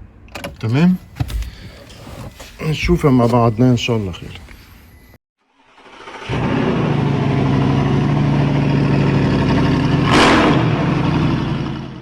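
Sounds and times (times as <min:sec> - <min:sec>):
loud engine-like drone: 0:05.9 - 0:12.0.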